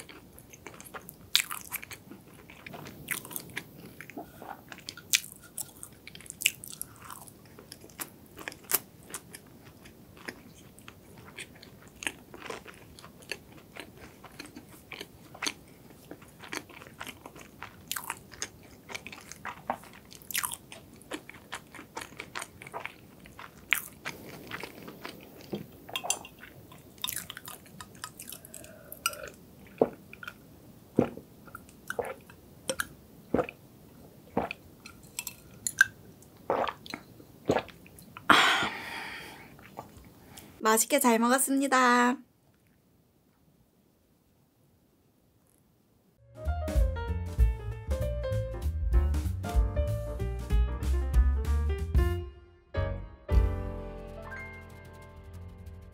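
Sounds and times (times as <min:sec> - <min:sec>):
chewing with crunchy clicks: 0:00.0 - 0:30.4.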